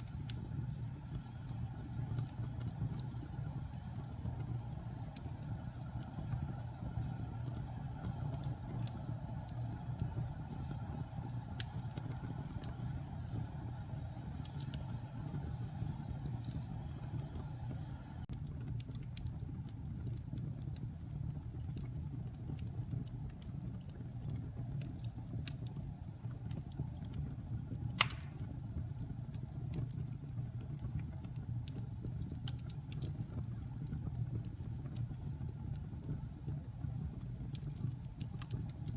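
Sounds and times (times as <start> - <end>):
wood fire crackling: 0.0 - 38.9
loud pop from fire: 28.0 - 28.6.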